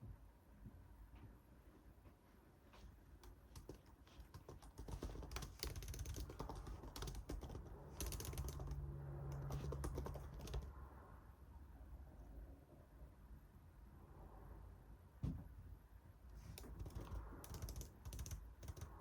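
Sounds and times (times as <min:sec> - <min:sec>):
keyboard key clicks: 0:03.2 - 0:08.8, 0:16.6 - 0:19.0.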